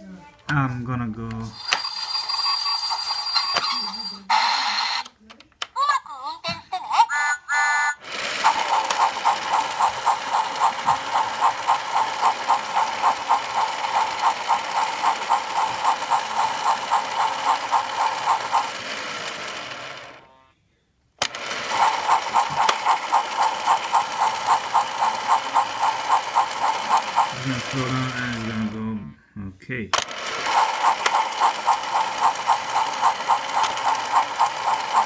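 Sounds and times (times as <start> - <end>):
toy train electronic chugging: 1.5 - 5.1, 5.8 - 20.3, 21.2 - 29.0, 30.0 - 35.0.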